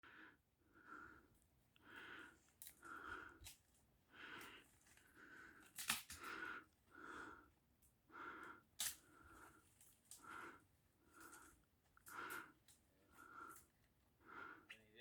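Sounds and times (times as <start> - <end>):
faint rhythmic breathing: 0.0 - 15.0.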